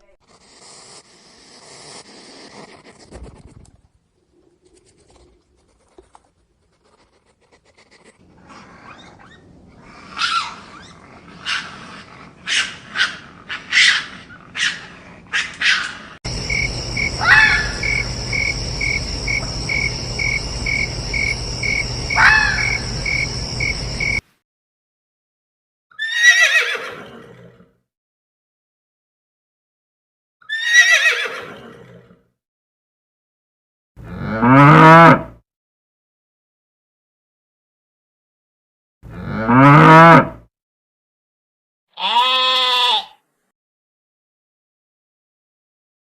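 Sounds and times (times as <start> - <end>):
sharp animal calls: 8.8 - 24.2, 42.0 - 43.2
pulsing chirp: 16.3 - 24.2.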